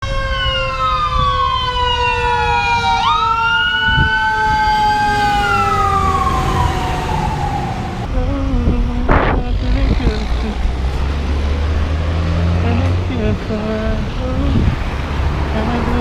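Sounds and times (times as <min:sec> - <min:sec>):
emergency sirens wailing: 0:00.0 - 0:16.0
steady low rumble: 0:07.4 - 0:11.9, 0:12.6 - 0:14.9.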